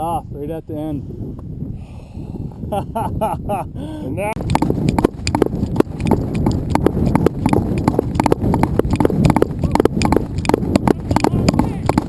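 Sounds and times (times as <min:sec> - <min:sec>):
rapid knocks and crunches: 0:04.4 - 0:12.0.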